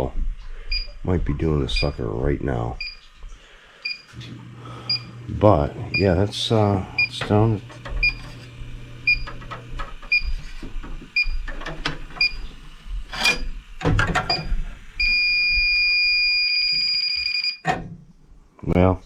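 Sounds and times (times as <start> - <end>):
leak detector beeping: 0.7 - 1.0, 1.7 - 2.0, 2.8 - 3.0, 3.8 - 4.1, 4.8 - 5.2, 5.9 - 6.3, 6.9 - 8.4, 9.0 - 10.5, 11.1 - 11.6, 12.2 - 12.5, 14.3 - 17.8.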